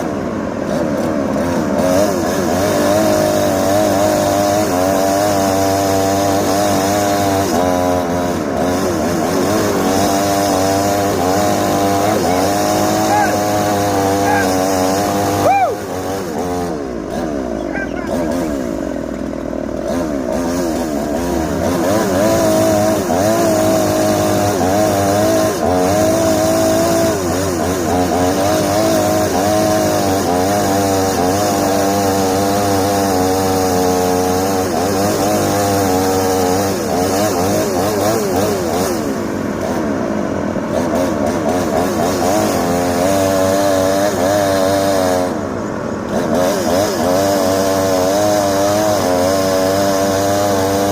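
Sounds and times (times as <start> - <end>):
chainsaw revving: 0.0 - 50.9.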